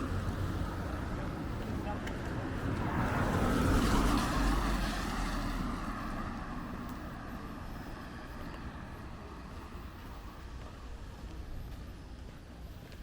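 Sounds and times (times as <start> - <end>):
vehicle passing by: 0.0 - 10.9.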